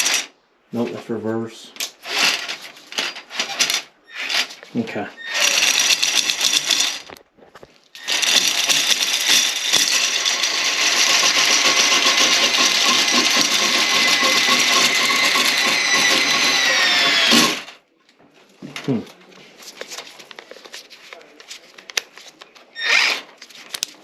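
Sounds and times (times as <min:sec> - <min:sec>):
drain snake motor whining: 0:05.2 - 0:07.0, 0:08.0 - 0:17.8.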